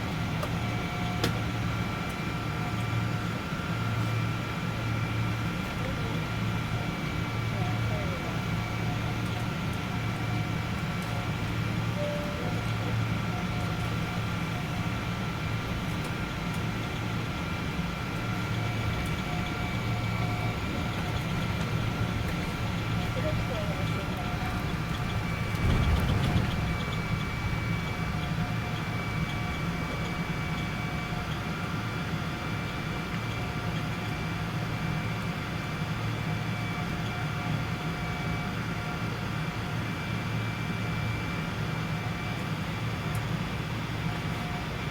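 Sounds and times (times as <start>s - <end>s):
airliner cabin hum: 0.0s - 35.8s
faint whining tones: 11.0s - 33.9s
faint high whine: 11.9s - 15.6s.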